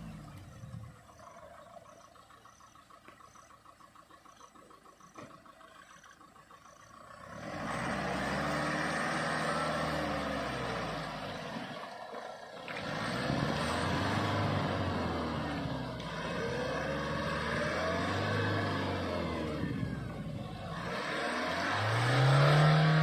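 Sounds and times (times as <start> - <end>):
faint rhythmic chirping: 0.0 - 7.6
car engine revving hard: 7.0 - 12.0, 12.6 - 23.0.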